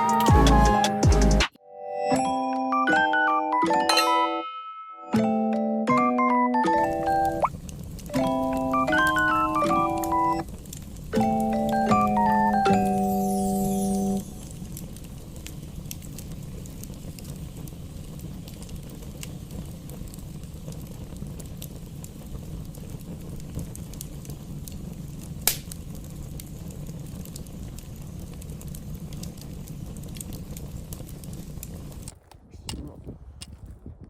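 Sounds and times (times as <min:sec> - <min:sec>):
campfire wood crackling: 0:00.0 - 0:01.4, 0:06.7 - 0:34.0
fire low rumble: 0:06.8 - 0:34.0.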